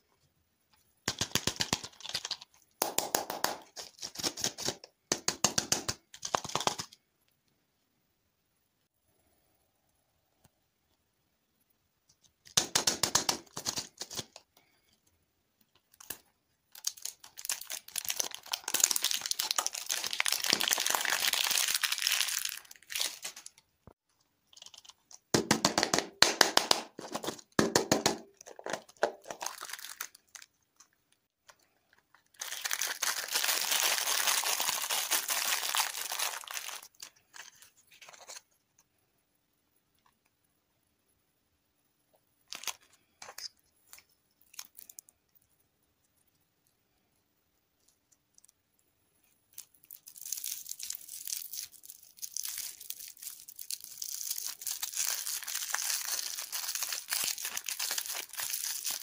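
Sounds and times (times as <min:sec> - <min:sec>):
plastic wrapper crinkling and tearing: 0:01.1 - 0:02.6, 0:15.8 - 0:23.6, 0:24.5 - 0:25.1, 0:28.4 - 0:30.9, 0:31.9 - 0:38.4, 0:42.5 - 0:45.1, 0:49.5 - 0:59.0.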